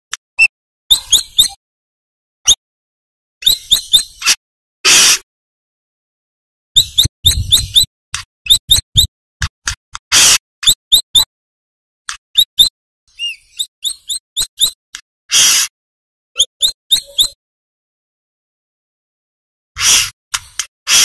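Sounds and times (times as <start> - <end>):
bird chirping: 0.4 - 1.6, 3.4 - 4.4, 6.8 - 7.9, 8.5 - 9.1, 10.6 - 11.3, 12.3 - 14.8, 16.4 - 17.4
harsh raspy bird calls: 3.4 - 5.3, 13.1 - 15.7, 19.8 - 20.2.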